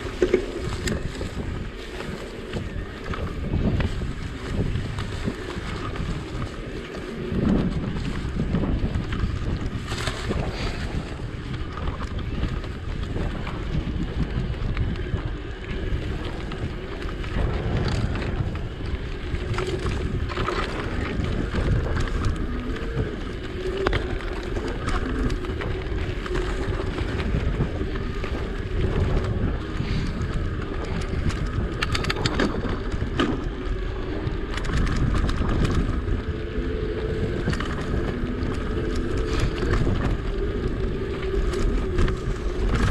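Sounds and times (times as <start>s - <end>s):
wind buffeting microphone: 0.0s - 42.9s
clicks and rattles: 23.6s - 42.9s.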